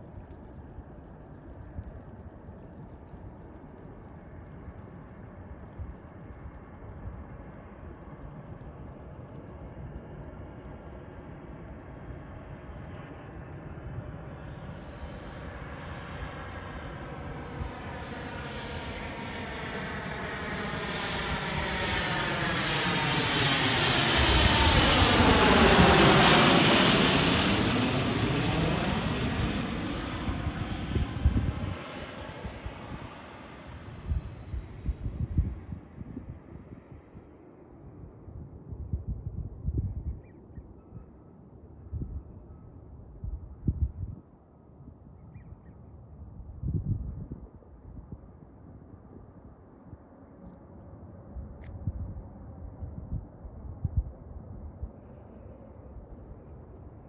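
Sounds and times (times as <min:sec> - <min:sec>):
jet engine whine passing: 0:08.6 - 0:38.2.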